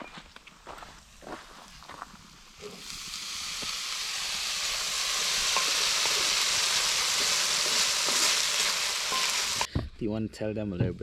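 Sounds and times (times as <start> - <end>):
onions sizzling in a pan: 1.1 - 9.7.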